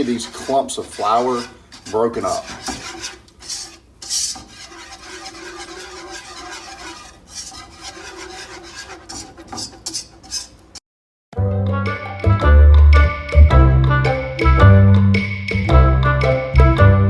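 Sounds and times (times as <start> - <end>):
metal whisk scraping a pot: 0.0 - 10.8
music: 11.4 - 17.0.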